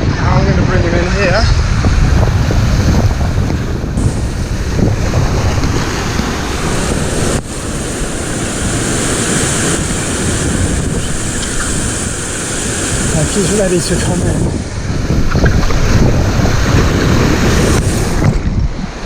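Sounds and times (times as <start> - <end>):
wind buffeting microphone: 0.0 - 19.0
surf washing against rocks: 3.9 - 19.0.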